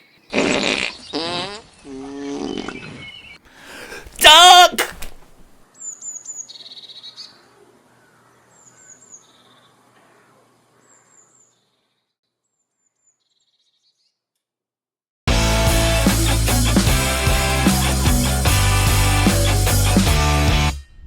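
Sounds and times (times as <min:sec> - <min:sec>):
songbird singing: 0:01.0 - 0:03.4, 0:05.7 - 0:12.1.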